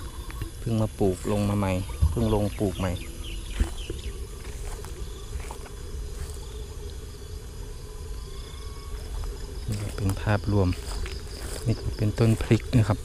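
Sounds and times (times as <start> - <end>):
insects trilling: 0.0 - 13.0
low rumble on microphone: 0.0 - 13.0.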